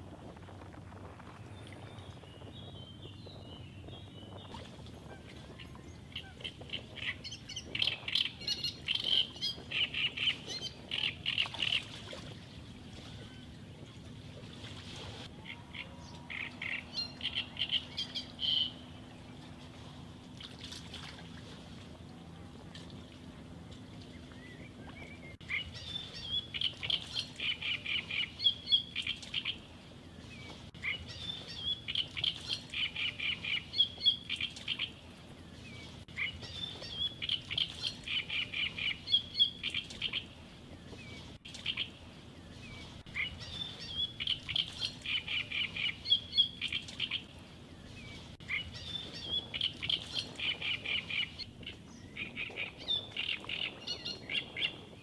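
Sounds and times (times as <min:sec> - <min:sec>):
songbird singing chirping phrase: 0:15.3 - 0:19.2, 0:24.1 - 0:54.9.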